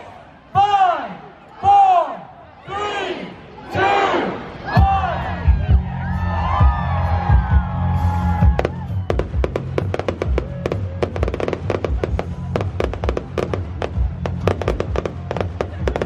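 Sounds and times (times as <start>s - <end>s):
music playing: 4.3s - 16.0s
fireworks bangs and crackles: 8.4s - 16.0s.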